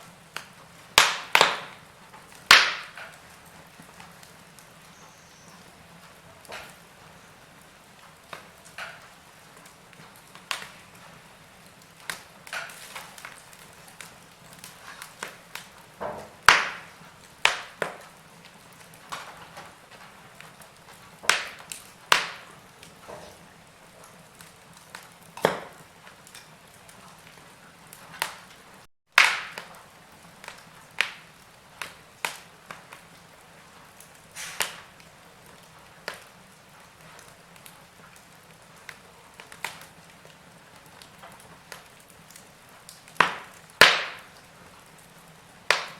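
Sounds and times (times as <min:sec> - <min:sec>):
soft steady hiss: 0:00.0 - 0:28.9
wood fire crackling: 0:00.0 - 0:45.9.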